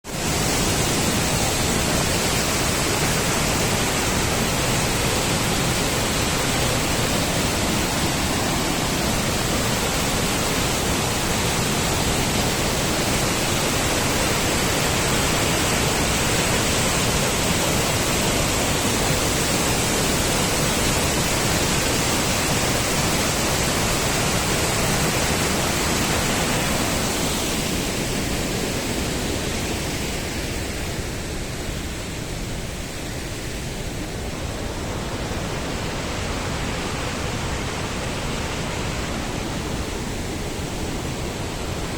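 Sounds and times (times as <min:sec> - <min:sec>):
waterfall crashing onto rock: 0:00.2 - 0:28.4.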